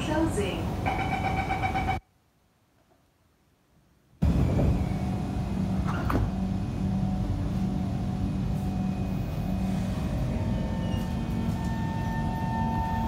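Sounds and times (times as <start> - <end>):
train rumble and electric hum: 0.0 - 2.0, 4.2 - 13.0
high traction motor whine: 4.2 - 13.0.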